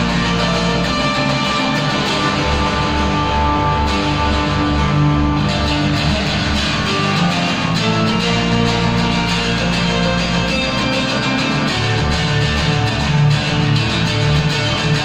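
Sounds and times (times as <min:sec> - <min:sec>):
band music: 0:00.0 - 0:15.0
bass line: 0:00.0 - 0:15.0.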